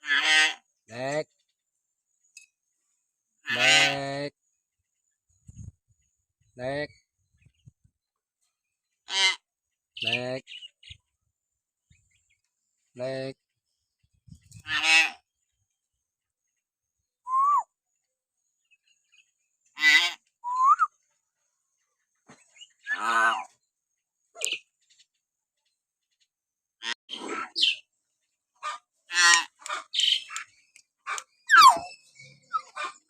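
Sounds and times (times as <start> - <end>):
myna calling: 31.1 - 33.0.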